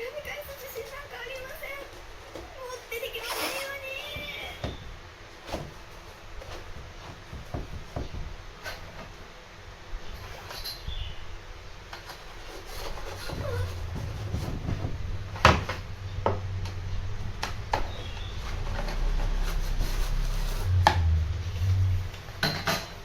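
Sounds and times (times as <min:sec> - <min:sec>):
low steady hum: 0:00.0 - 0:23.0
sharp handling knocks: 0:04.0 - 0:09.2, 0:12.1 - 0:19.7
rubbing: 0:12.0 - 0:16.0, 0:18.0 - 0:21.8.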